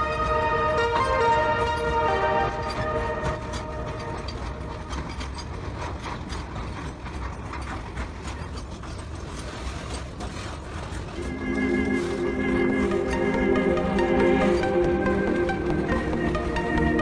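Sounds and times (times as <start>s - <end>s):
music: 0.0s - 5.4s, 11.2s - 17.0s
freight wagons rattling past: 0.0s - 17.0s.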